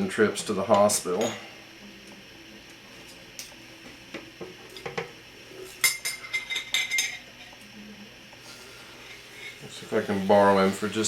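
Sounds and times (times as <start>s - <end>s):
high glass ring: 1.2s - 1.5s.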